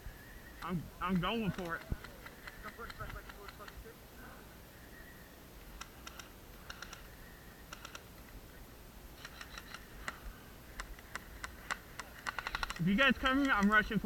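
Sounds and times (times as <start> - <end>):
airsoft guns firing: 1.0 - 3.9, 5.7 - 8.2, 9.2 - 14.0.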